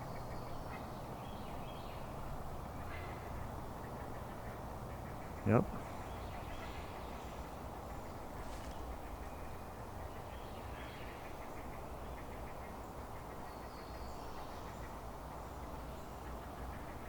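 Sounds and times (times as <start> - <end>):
ducks quacking: 3.9 - 7.2.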